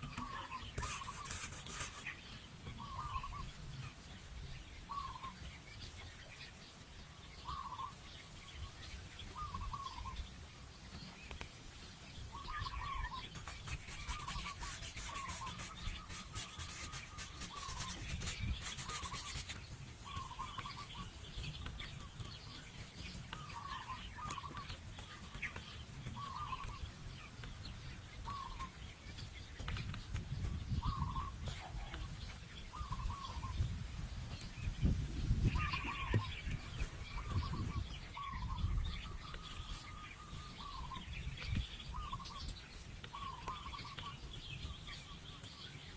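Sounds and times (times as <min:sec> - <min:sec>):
rapid scraping: 0:00.0 - 0:02.3, 0:13.2 - 0:20.6
bird chirping: 0:00.0 - 0:45.9.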